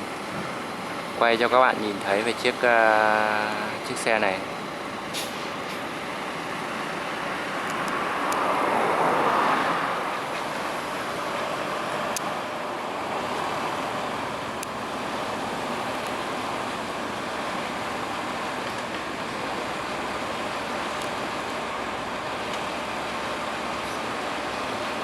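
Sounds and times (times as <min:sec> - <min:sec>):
vehicle passing by: 0:06.7 - 0:17.0.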